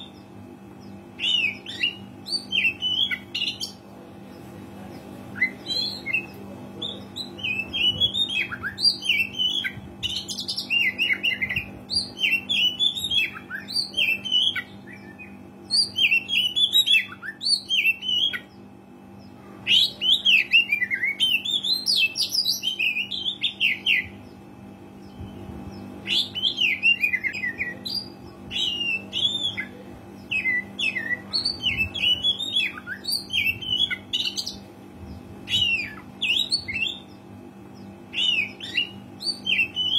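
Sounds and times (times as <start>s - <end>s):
steady low hum: 0.0s - 39.9s
bird singing whistles and chirps: 25.0s - 34.6s, 35.5s - 37.2s, 38.1s - 39.9s.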